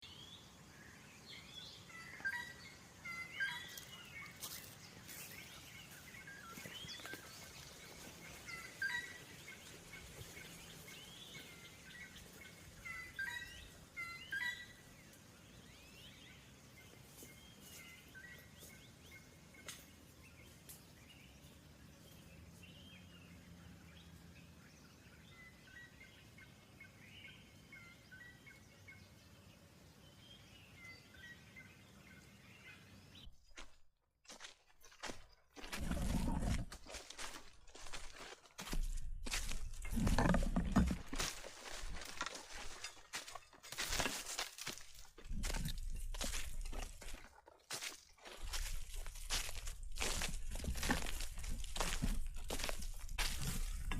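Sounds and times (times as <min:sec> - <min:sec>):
birds chirping and calling: 0:01.3 - 0:15.0, 0:35.0 - 0:53.9.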